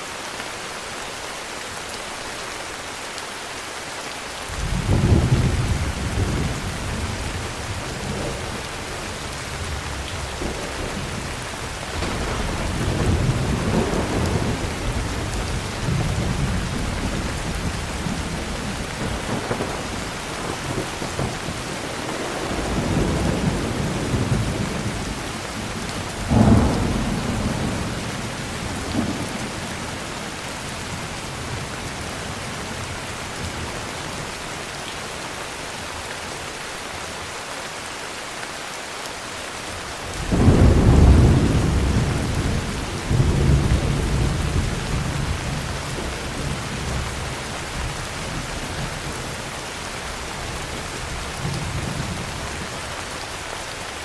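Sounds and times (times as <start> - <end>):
heavy rain: 0.0 - 54.0
thunder claps and rumbles: 4.5 - 34.4, 40.0 - 53.0.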